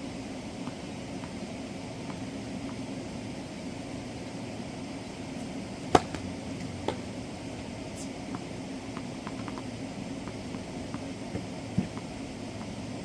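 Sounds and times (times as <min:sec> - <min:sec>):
steady background hum: 0:00.0 - 0:13.0
tennis ball struck by racket: 0:05.8 - 0:07.2.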